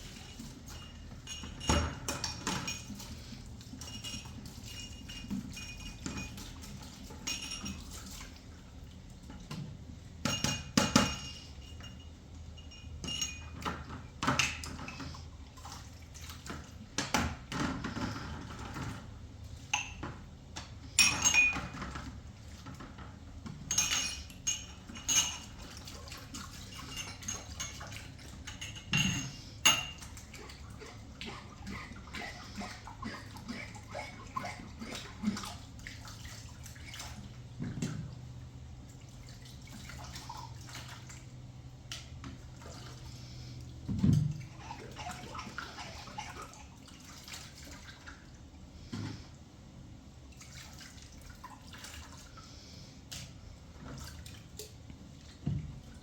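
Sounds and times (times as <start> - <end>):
kitchenware clinking and knocking: 0.4 - 3.1, 10.2 - 12.0, 21.0 - 22.1, 23.6 - 25.6, 28.4 - 30.1.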